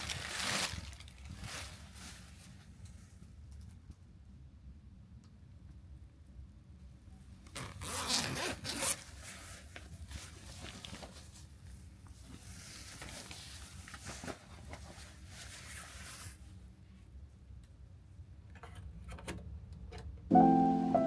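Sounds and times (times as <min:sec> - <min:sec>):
fabric rustling: 0:00.0 - 0:02.8, 0:07.6 - 0:16.5
zipper pulled open: 0:07.5 - 0:09.1.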